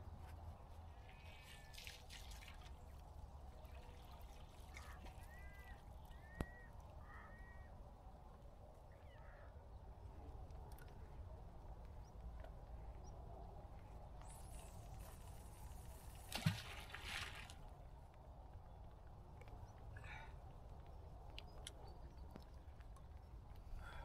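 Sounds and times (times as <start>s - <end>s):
bird calls: 4.7s - 7.7s, 8.9s - 9.5s.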